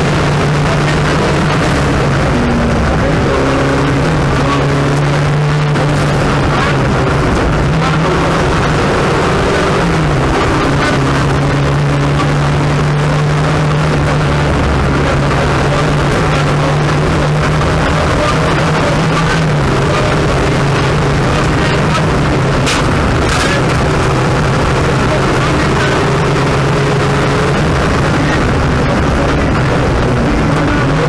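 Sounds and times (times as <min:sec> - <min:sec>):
car engine running hard: 0:00.0 - 0:31.0
road and tyre noise: 0:00.0 - 0:31.0.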